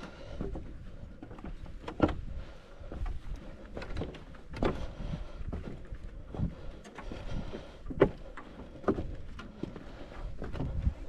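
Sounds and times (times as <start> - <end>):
footsteps on a trail: 0.0 - 11.0
wind rumble on microphone: 8.9 - 11.0.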